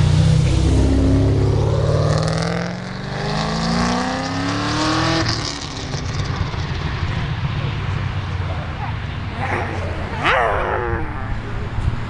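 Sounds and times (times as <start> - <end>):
car engine accelerating hard: 0.0 - 11.8.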